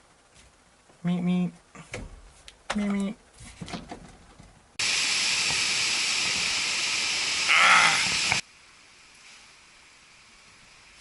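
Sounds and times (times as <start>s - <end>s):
loud steady hiss: 4.8s - 11.0s.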